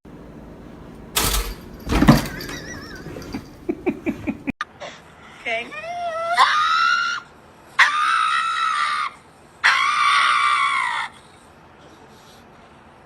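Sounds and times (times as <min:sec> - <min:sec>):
high-pitched screams: 0:06.1 - 0:11.2.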